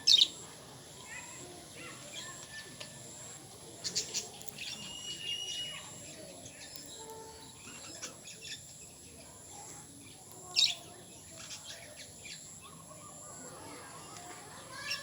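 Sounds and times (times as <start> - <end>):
lovebirds chirping: 0.0 - 0.4, 3.2 - 8.7.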